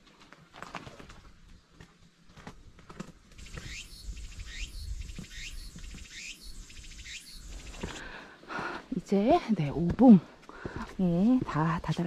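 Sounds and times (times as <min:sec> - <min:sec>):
bird calling sweeping note: 0:03.4 - 0:08.0.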